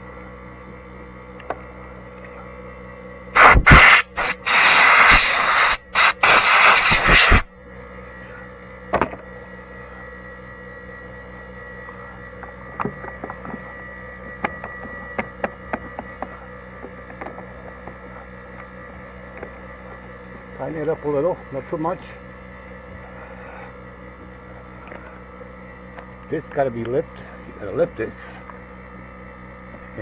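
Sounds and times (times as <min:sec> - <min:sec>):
steady hum: 0:03.2 - 0:30.0
compressed air hissing: 0:03.4 - 0:07.5.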